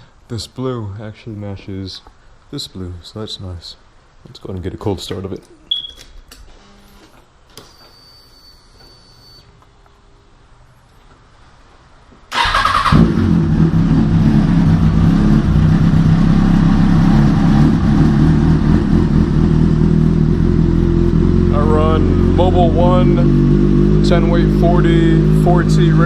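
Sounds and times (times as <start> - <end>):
faint high whine: 5.6 - 11.0
motorcycle engine idling: 12.4 - 26.0.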